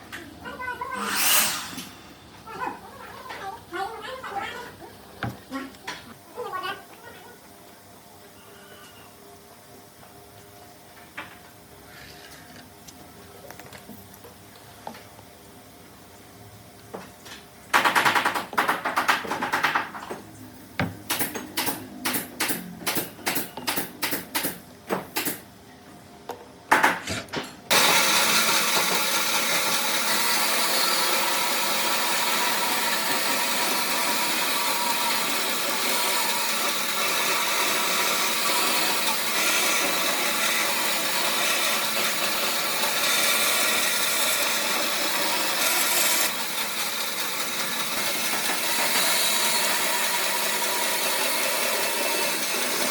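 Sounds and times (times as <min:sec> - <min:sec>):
power tool on wood: 0:00.9 - 0:02.1, 0:27.7 - 0:52.9.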